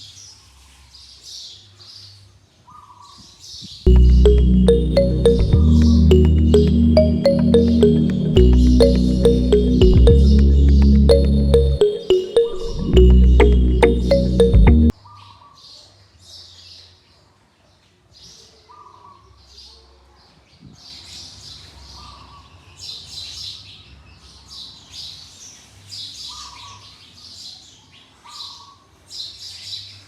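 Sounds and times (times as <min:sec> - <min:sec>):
music: 0:03.9 - 0:14.9.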